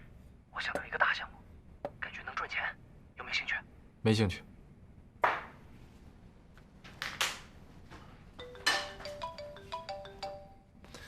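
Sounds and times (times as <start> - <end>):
marimba-like phone ringtone: 8.4 - 10.8.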